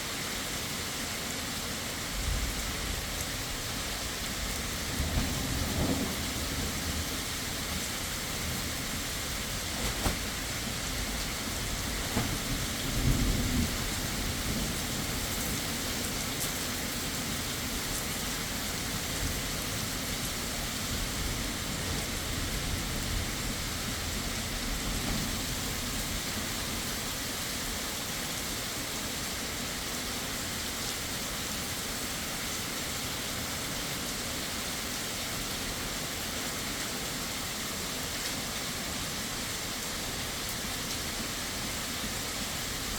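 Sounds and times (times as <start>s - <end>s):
heavy rain falling: 0.0s - 42.9s
thunder rumbling: 2.2s - 15.6s.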